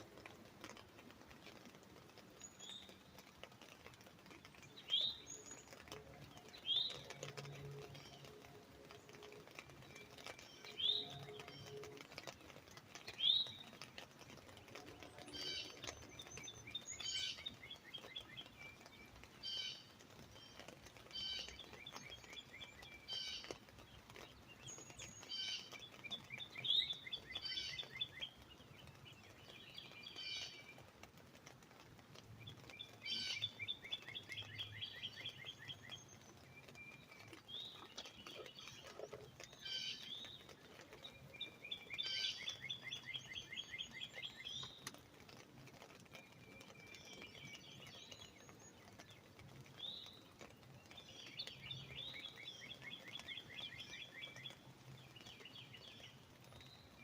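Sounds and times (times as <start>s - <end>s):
bird chirps and calls: 9.9s - 12.0s, 15.0s - 23.6s, 24.2s - 30.8s, 32.5s - 44.9s.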